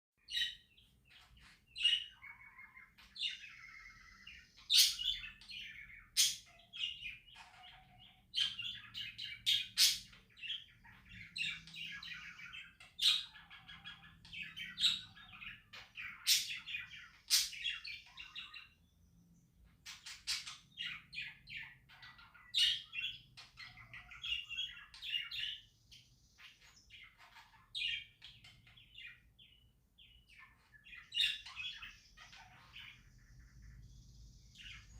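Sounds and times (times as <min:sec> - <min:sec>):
budgerigars chirping and chattering: 0:00.2 - 0:34.9.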